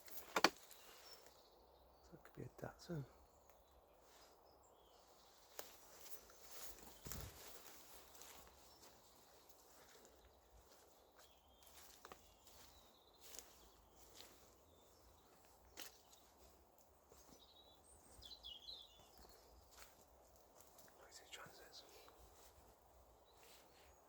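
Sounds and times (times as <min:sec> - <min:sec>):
bird chirping: 0:00.0 - 0:24.0
faint outdoor ambience: 0:00.0 - 0:24.0.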